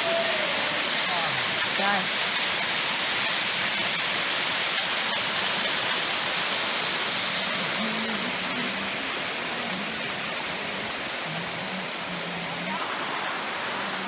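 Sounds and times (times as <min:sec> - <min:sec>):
flowing water rushing: 0:00.0 - 0:14.0.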